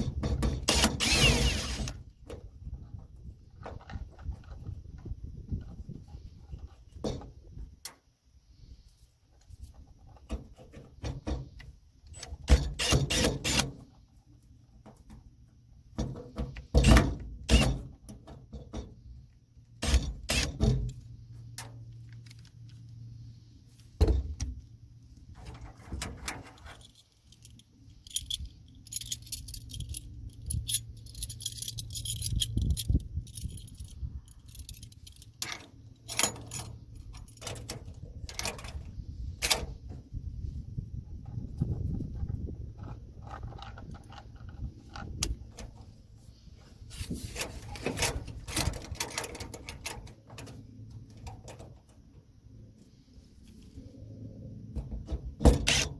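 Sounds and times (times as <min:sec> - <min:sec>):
metal clinking and rattling: 0:25.4 - 0:38.9.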